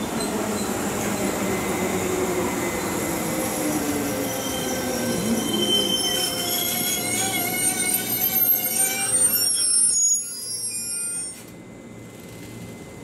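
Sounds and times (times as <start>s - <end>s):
train brakes squealing: 0.0s - 12.9s.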